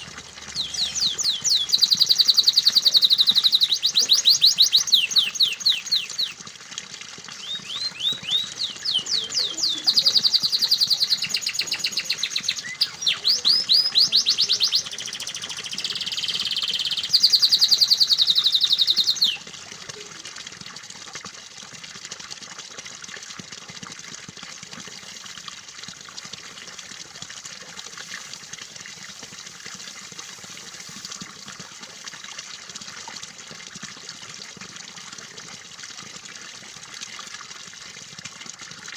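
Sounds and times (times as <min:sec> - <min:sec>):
canary singing fast trills: 0:00.0 - 0:06.4, 0:07.4 - 0:19.4
trickle of running water: 0:00.0 - 0:38.9.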